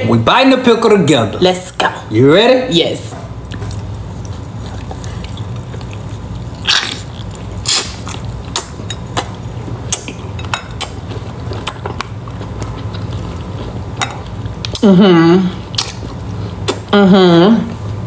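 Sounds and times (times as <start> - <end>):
steady low hum: 0.0 - 18.0
crisp crunches of biting: 4.9 - 8.7.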